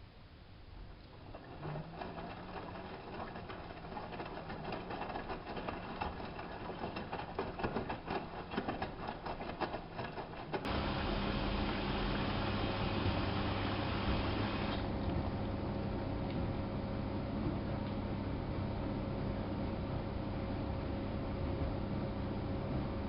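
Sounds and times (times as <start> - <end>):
washing machine drum humming: 1.0 - 18.5
laundry sloshing and clattering: 1.1 - 15.3.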